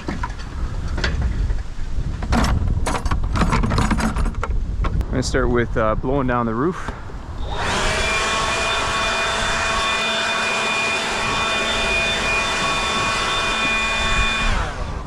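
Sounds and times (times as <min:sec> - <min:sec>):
leaf blower whining: 0:07.4 - 0:15.0.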